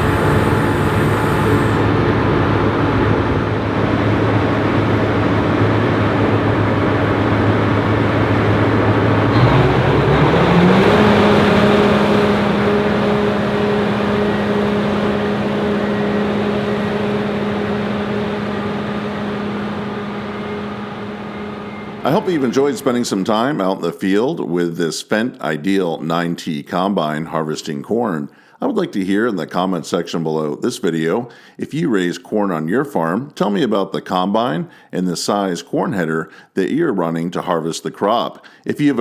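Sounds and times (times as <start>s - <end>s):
combine harvester engine humming: 0.0s - 23.2s.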